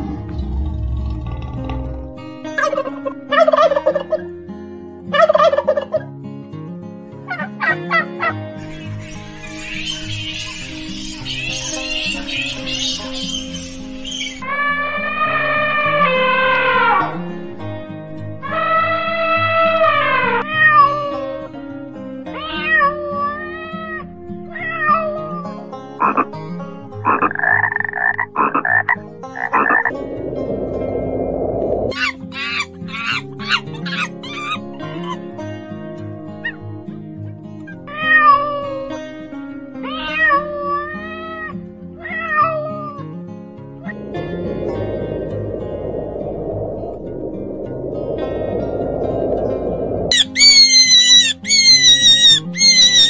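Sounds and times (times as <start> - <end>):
background music: 0.0 - 53.0
cat meowing: 20.3 - 21.4, 22.3 - 25.5, 37.9 - 39.0, 39.8 - 43.0, 50.1 - 53.0.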